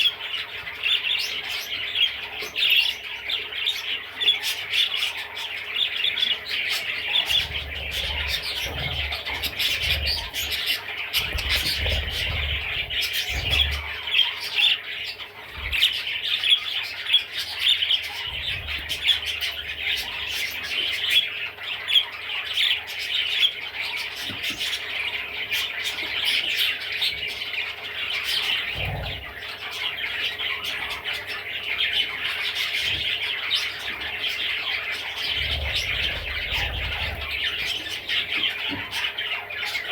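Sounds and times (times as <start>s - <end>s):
budgerigar warbling: 6.3s - 16.1s, 27.8s - 39.9s.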